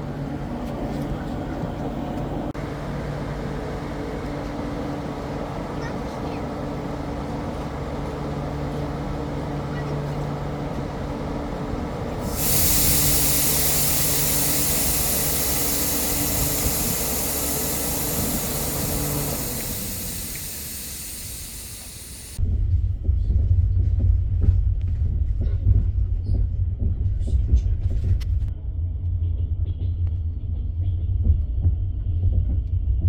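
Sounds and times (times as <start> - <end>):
train humming: 0.0 - 22.4
loud hiss: 12.2 - 22.4.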